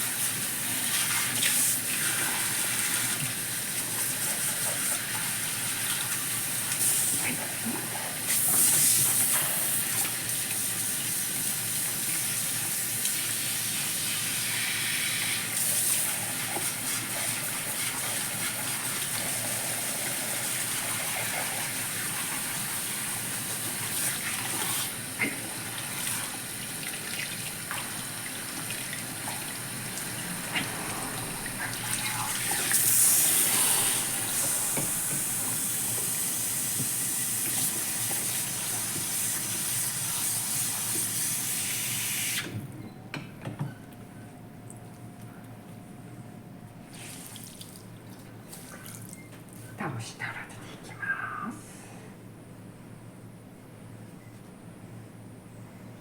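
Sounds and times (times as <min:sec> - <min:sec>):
shower head spraying water on hair: 0:06.6 - 0:07.5, 0:31.6 - 0:42.4.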